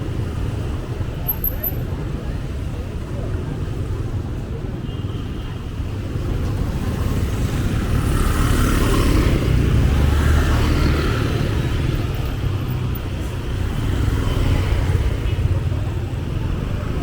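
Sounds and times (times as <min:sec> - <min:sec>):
low traffic rumble: 0:05.6 - 0:17.0.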